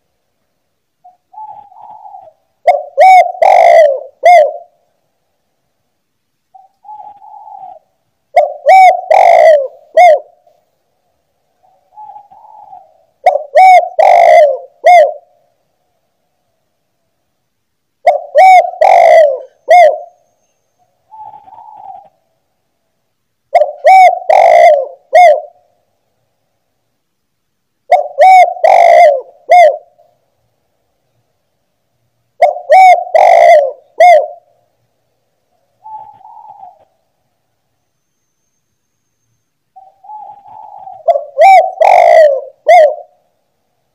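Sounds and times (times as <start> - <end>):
dove cooing: 1.0 - 4.8, 6.6 - 10.5, 11.6 - 15.4, 18.0 - 20.4, 21.0 - 22.2, 23.5 - 25.7, 27.9 - 30.1, 32.4 - 34.6, 35.8 - 37.0, 39.8 - 43.3.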